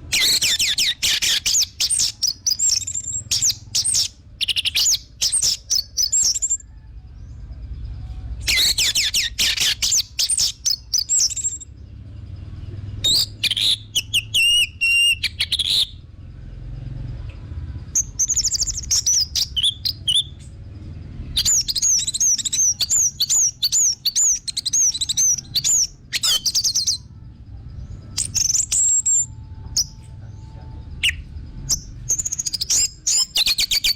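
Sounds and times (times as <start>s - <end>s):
low rumble: 26.9s - 32.6s.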